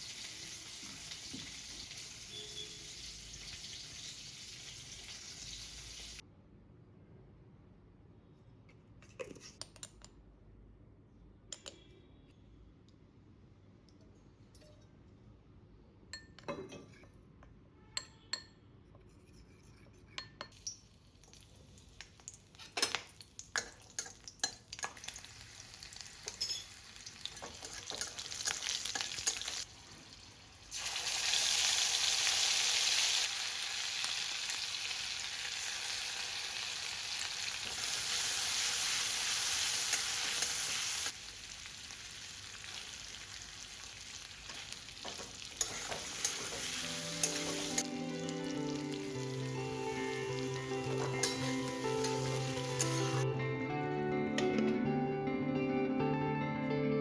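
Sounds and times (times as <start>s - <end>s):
food sizzling in hot oil: 0.0s - 6.2s, 20.6s - 53.2s
utensil tapping a pan: 44.5s - 53.2s.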